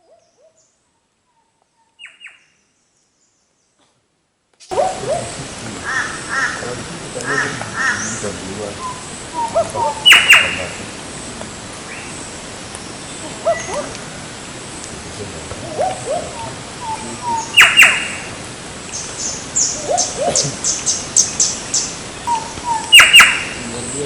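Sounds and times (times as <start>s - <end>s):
wild birds calling: 4.6s - 24.0s.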